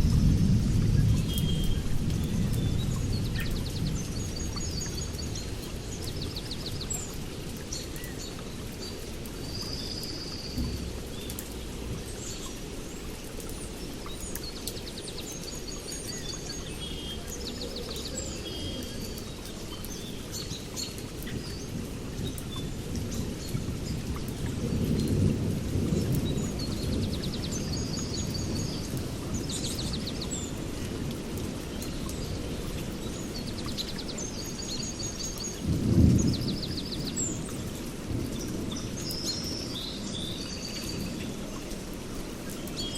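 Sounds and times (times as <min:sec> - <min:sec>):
birds singing: 0:00.0 - 0:42.9
rain rumble: 0:00.0 - 0:42.9
distant thunder: 0:35.6 - 0:39.0.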